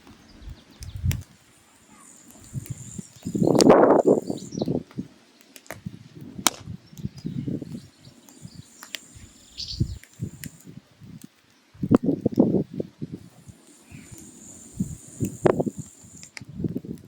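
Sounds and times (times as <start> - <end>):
firewood crackling and popping: 0.0 - 17.0
faint steady high tone: 1.6 - 4.7.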